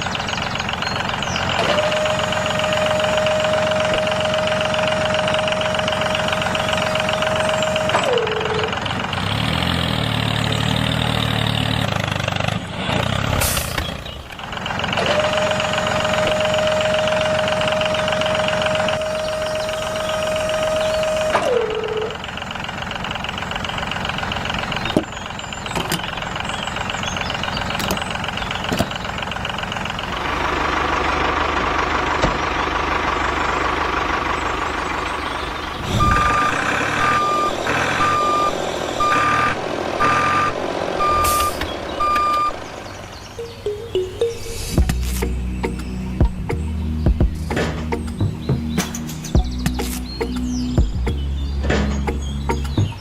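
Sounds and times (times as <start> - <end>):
vehicle running noise: 0.0 - 53.0
reversing beeper: 1.3 - 8.8, 15.0 - 22.2, 34.4 - 45.0
steady high whine: 35.7 - 46.3.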